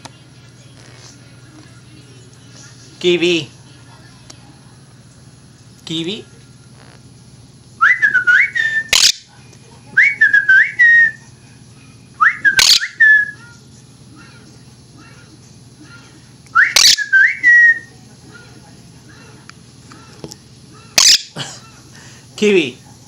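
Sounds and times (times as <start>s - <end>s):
parrot whistling a tune: 7.8s - 9.2s, 10.0s - 11.2s, 12.2s - 13.5s, 16.6s - 17.9s.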